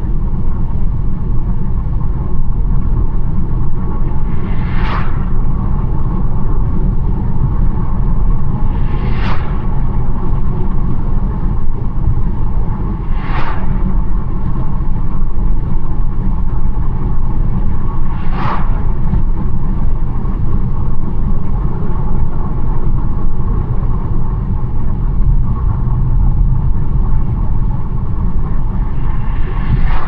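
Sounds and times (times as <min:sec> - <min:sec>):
engine and tyre rumble: 0:00.0 - 0:30.0
brief whooshes: 0:04.4 - 0:05.4, 0:09.0 - 0:09.8, 0:13.0 - 0:14.0, 0:28.9 - 0:30.0.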